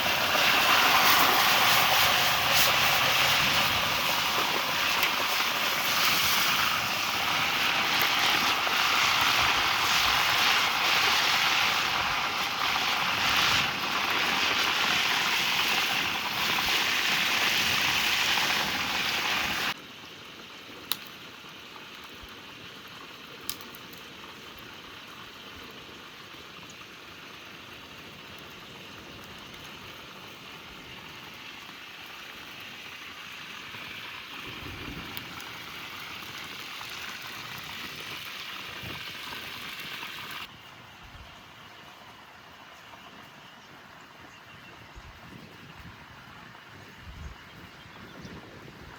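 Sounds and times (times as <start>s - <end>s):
oil popping: 0.0s - 19.8s
fish sizzling in hot oil: 0.0s - 40.5s.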